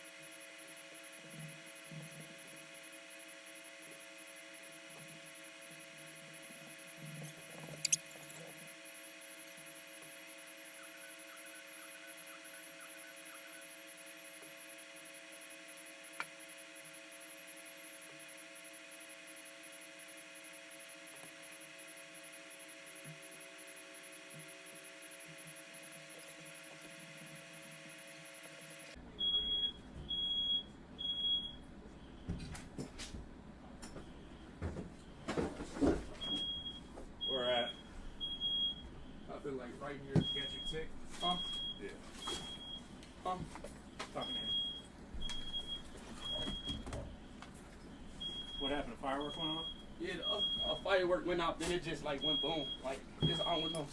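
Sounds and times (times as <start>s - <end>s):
faint hum of held tones: 0.0s - 32.6s, 33.4s - 53.9s
small clicks: 7.2s - 8.5s
smoke alarm beeping: 7.8s - 8.4s, 29.2s - 31.6s, 36.3s - 38.8s, 40.2s - 42.8s, 44.2s - 46.8s, 48.2s - 50.8s, 52.2s - 53.9s.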